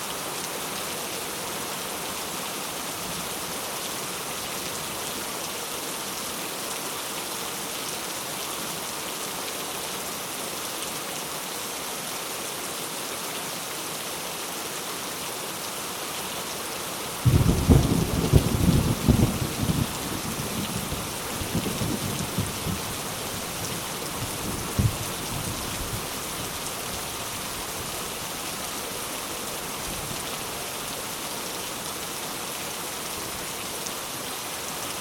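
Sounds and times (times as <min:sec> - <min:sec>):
rain pattering: 0:17.2 - 0:30.7.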